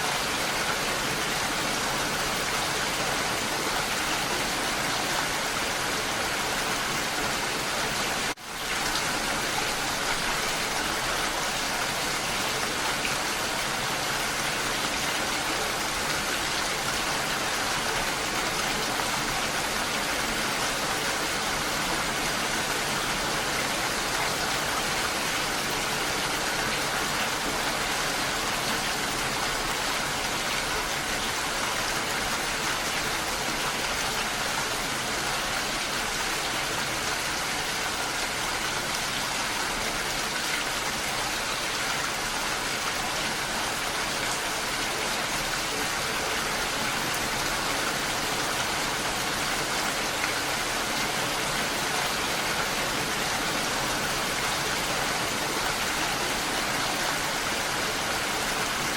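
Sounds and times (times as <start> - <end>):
steady rain patter: 0.0 - 58.9.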